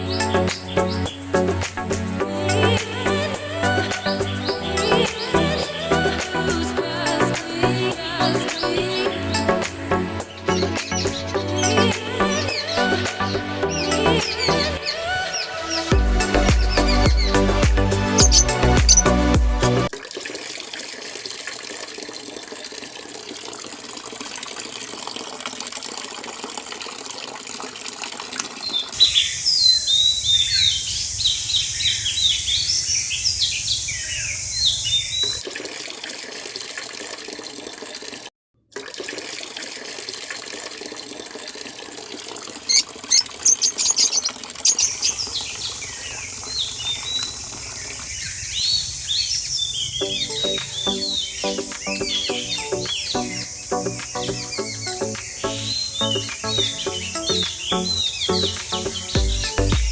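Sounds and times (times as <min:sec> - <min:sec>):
small birds chirping rapidly: 0:10.2 - 0:19.2, 0:28.6 - 0:35.4, 0:42.6 - 0:59.9
water-like rushing: 0:35.4 - 0:48.8.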